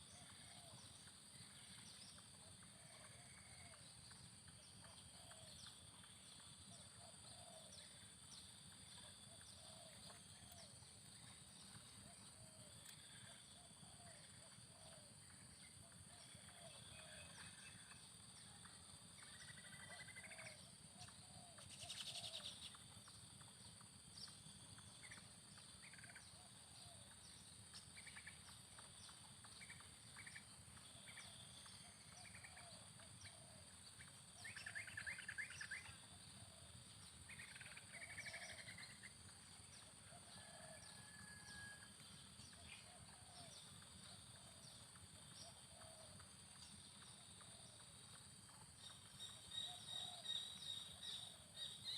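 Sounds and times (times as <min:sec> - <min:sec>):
bird trills and chirps: 0:42.5 - 0:51.9
doves cooing: 0:42.8 - 0:43.5, 0:45.4 - 0:46.2.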